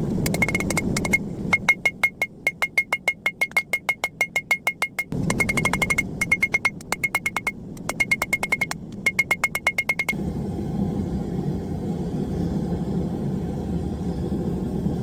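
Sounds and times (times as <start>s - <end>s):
hammer striking steel on anvil: 0.4s - 10.1s.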